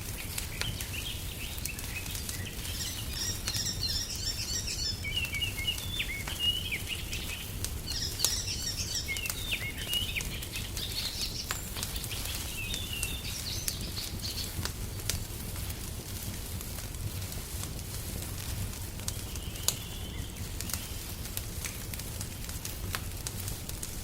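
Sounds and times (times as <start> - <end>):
songbirds twittering: 0.0 - 15.4, 19.1 - 21.3
fire crackling: 0.0 - 24.0.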